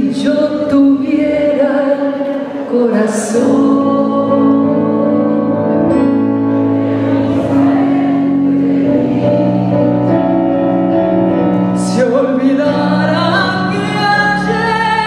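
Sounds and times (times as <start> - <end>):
woman singing tango: 0.0 - 6.4, 11.7 - 15.0
instrumental accompaniment: 3.8 - 15.0.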